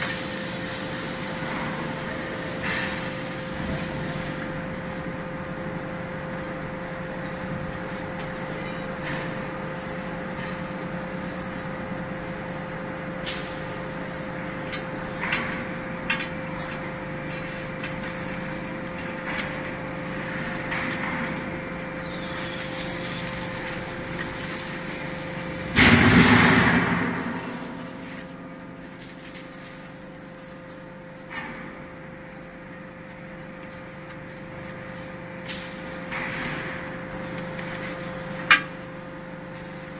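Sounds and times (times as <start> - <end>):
hydraulic power unit humming: 0.0 - 39.9
loud rushing burst: 25.7 - 28.8.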